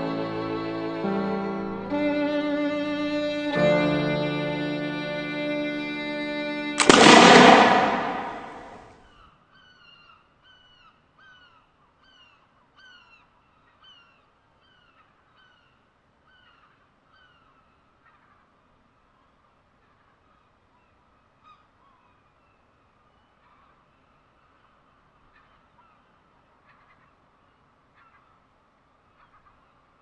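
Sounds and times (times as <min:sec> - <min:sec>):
music: 0:00.0 - 0:07.9
loud ringing crash: 0:06.8 - 0:08.8.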